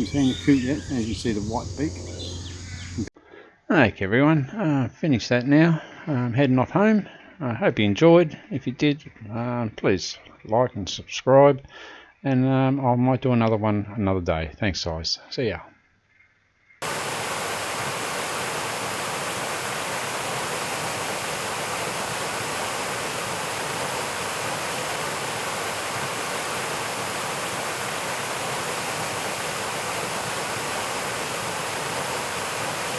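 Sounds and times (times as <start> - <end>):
steady rushing hiss: 0.0 - 3.1, 16.8 - 32.9.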